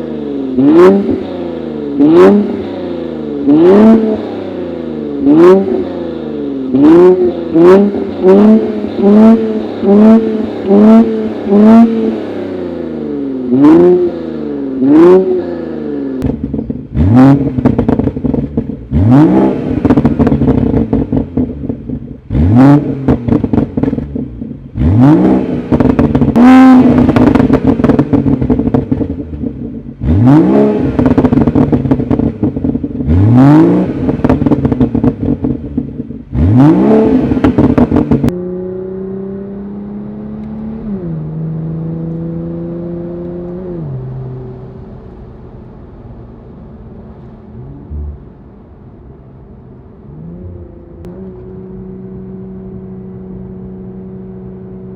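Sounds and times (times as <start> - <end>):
car exhaust revving: 0.0 - 54.9
exhaust pops and crackles: 16.2 - 24.6, 25.7 - 30.1, 30.7 - 38.3.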